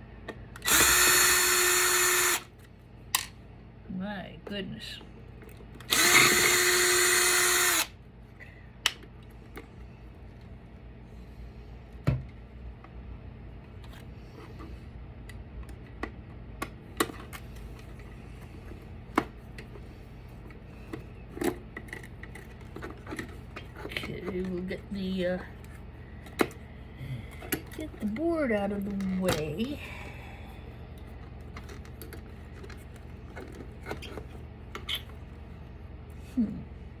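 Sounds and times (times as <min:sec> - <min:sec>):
power drill running: 0:00.6 - 0:02.5, 0:05.9 - 0:08.0.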